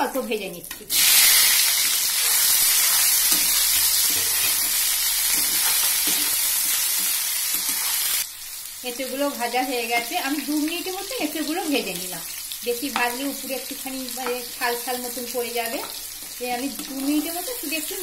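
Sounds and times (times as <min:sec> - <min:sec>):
food sizzling in oil: 0:00.0 - 0:18.0
metal spatula scraping: 0:01.2 - 0:08.2.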